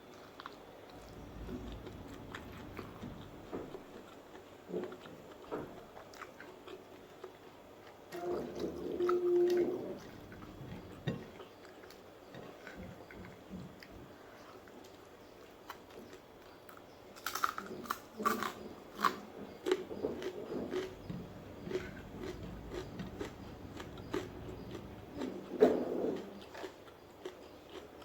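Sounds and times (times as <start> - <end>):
person chewing food: 0.0 - 28.0
steady hummed tone: 0.9 - 4.0, 20.0 - 25.6.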